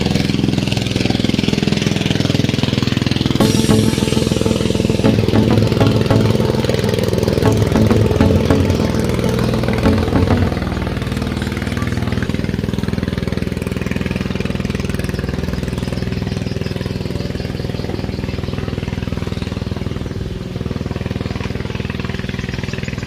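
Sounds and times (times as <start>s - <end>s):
speedboat engine idling: 0.0s - 23.0s.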